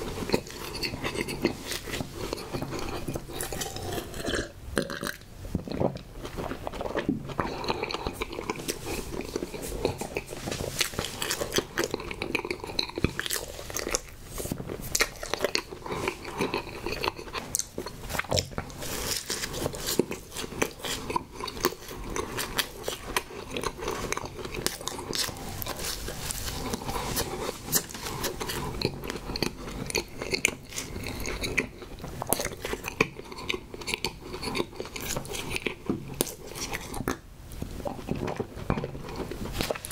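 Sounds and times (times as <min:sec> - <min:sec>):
biting and chewing snack cake: 0:00.0 - 0:39.9
soft crunches: 0:05.8 - 0:31.4.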